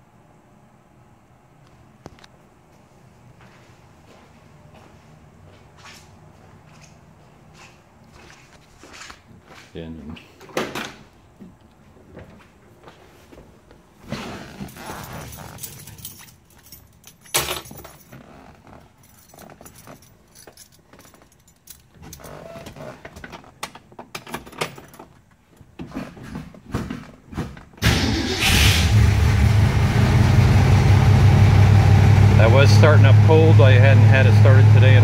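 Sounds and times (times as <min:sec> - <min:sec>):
keys rattling: 0:14.6 - 0:25.7
car engine starting and running: 0:27.8 - 0:35.0.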